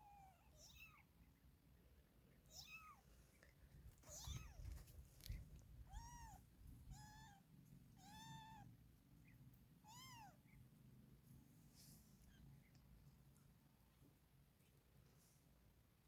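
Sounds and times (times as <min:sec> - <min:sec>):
cat meowing: 0:00.0 - 0:01.0, 0:02.5 - 0:03.0, 0:05.9 - 0:07.4, 0:08.0 - 0:08.7, 0:09.8 - 0:10.4.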